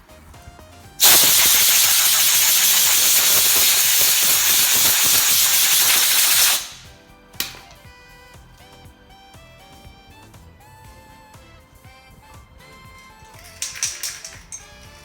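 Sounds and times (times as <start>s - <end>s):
welder sizzling and crackling: 1.0s - 7.6s
sharp click: 5.8s - 7.8s.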